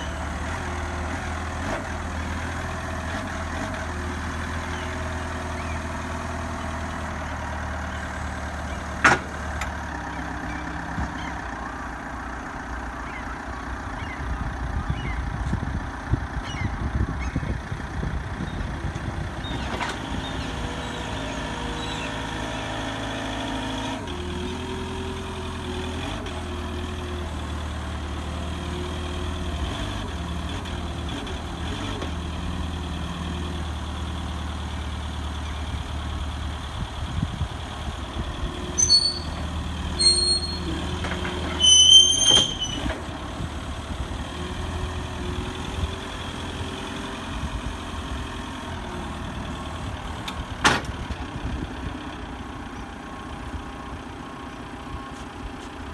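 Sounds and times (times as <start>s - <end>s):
truck engine running: 0.0s - 55.9s
high-pitched squeals: 38.8s - 40.9s, 41.5s - 42.9s.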